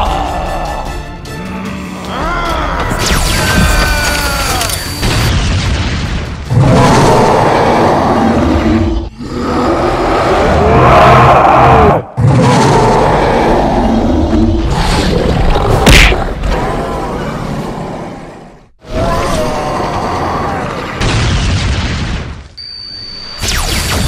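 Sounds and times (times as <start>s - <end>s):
cartoon booming blasts: 21.0s - 22.4s.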